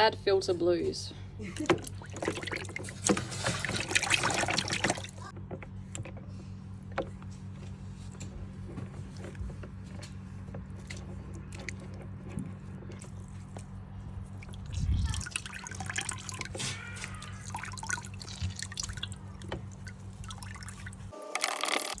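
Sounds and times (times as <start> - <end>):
steady low hum: 0.0 - 16.4
water dripping and trickling: 1.5 - 5.3, 12.9 - 21.1.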